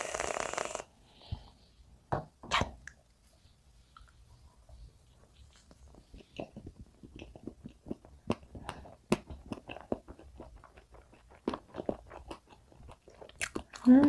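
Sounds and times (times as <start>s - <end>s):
wet mouth clicks and smacks: 5.6s - 14.0s.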